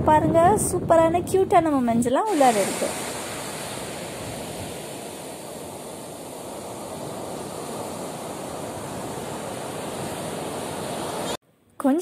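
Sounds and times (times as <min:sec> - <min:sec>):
sea waves washing on beach: 0:02.3 - 0:11.4.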